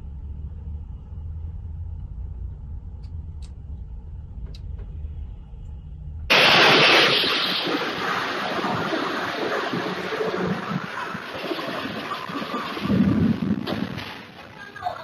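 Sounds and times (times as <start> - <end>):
vehicle engine rumble: 0.0 - 6.3
loud rushing hiss: 6.3 - 14.5.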